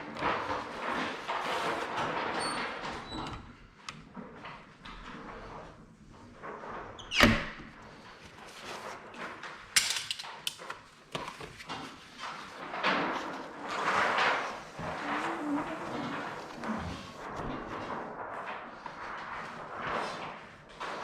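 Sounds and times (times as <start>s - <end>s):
plastic film rustling and crackling: 0.0s - 2.8s, 7.8s - 21.0s.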